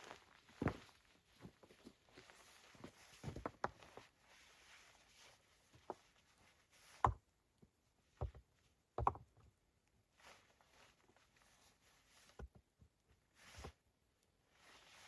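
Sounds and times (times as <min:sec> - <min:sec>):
soft rustling: 0:00.0 - 0:07.1, 0:10.1 - 0:12.5, 0:13.2 - 0:15.0.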